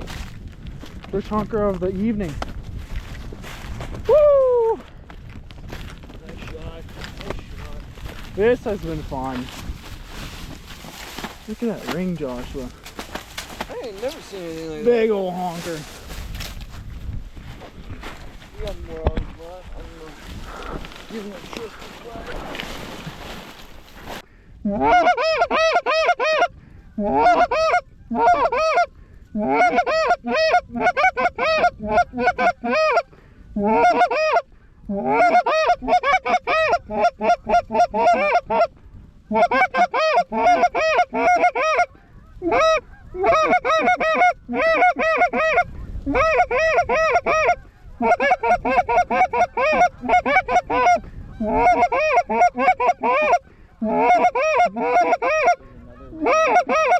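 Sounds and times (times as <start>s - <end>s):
goose honking and clucking: 24.6s - 56.9s.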